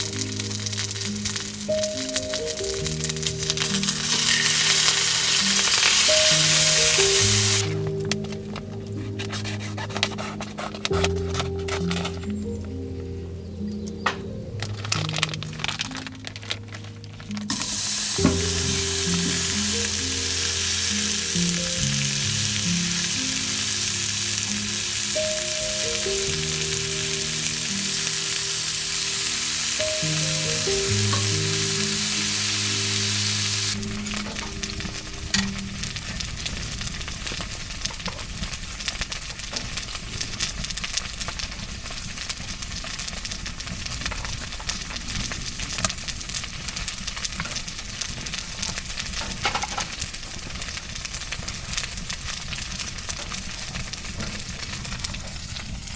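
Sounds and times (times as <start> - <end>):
steak sizzling in a pan: 0.0 - 12.6, 14.9 - 55.9
gentle melody: 0.0 - 55.9.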